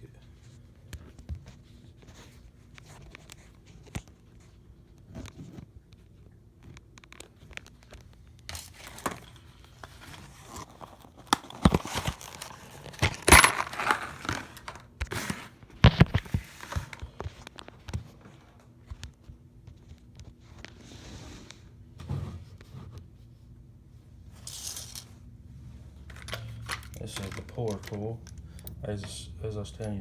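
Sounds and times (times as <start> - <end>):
packaging crinkling and rustling: 6.6 - 20.8.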